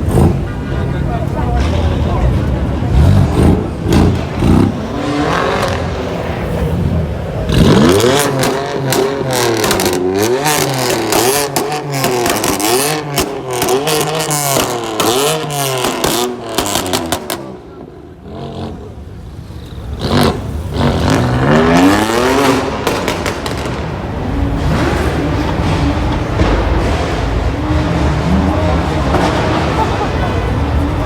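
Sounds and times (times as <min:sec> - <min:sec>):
car engine revving: 0:00.0 - 0:31.0
exhaust pops and crackles: 0:07.6 - 0:17.7, 0:22.3 - 0:30.4.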